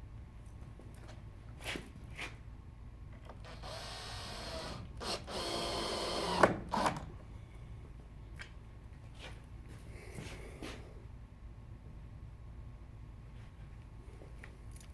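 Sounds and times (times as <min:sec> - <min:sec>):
power drill running: 0:03.4 - 0:07.0.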